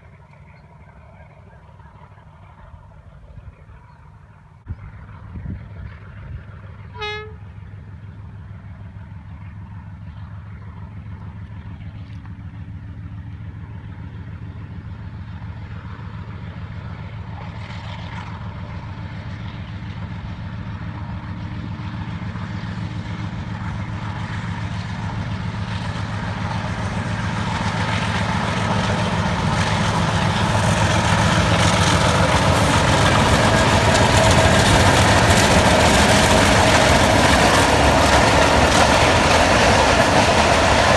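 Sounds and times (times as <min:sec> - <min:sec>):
diesel locomotive running: 0:00.0 - 0:40.9
wheels on rails: 0:25.1 - 0:40.9.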